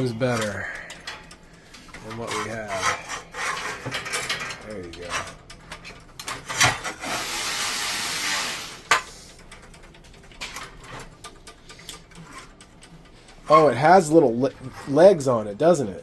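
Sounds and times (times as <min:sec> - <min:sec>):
metal clinks and knocks: 0:00.0 - 0:07.0
hiss: 0:07.1 - 0:08.9.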